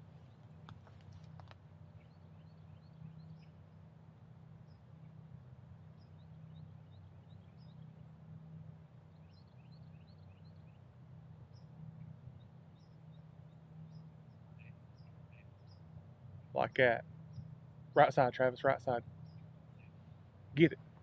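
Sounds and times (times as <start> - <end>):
low steady rumble: 0.0 - 21.0
faint high bird chirps: 2.0 - 3.6, 5.9 - 8.0, 9.1 - 18.0.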